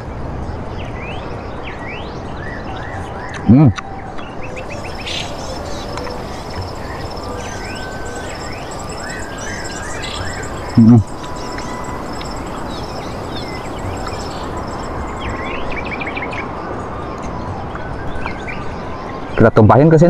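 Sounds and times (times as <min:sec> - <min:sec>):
birds chirping: 0:00.8 - 0:16.6
outdoor background hiss: 0:03.5 - 0:16.8.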